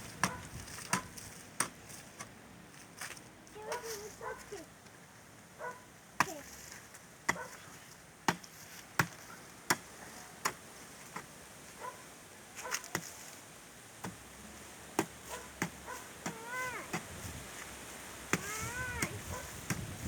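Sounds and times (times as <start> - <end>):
hoe chopping into soil: 0.0 - 2.3, 6.2 - 11.3, 12.7 - 13.3, 14.0 - 14.3, 15.0 - 17.2, 18.3 - 20.0.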